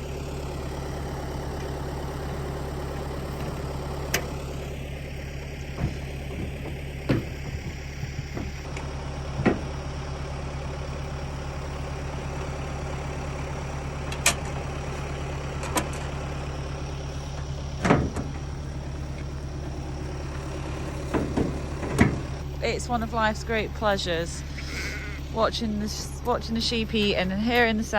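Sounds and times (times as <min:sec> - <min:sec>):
tractor engine idling: 0:00.0 - 0:27.9
sharp knocks: 0:05.8 - 0:08.7.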